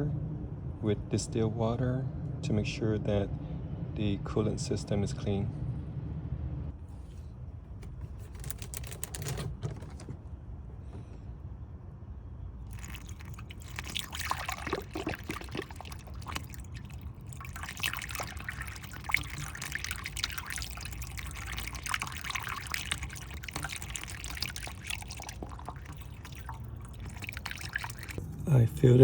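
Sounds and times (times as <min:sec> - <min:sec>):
water pouring into radiator: 0:12.7 - 0:28.2.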